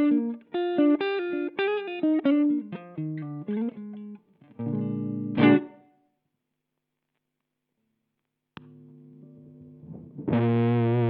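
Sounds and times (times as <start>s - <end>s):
fuzz electric guitar: 4.6s - 5.8s, 9.2s - 11.0s.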